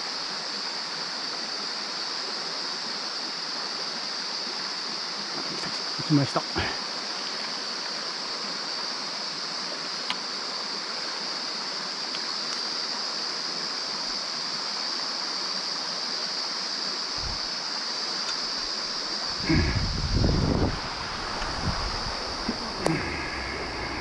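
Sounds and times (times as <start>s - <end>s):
high-pitched hiss: 0.0s - 24.0s
stream flowing over rocks: 0.0s - 24.0s
low loud rumbling: 19.4s - 24.0s.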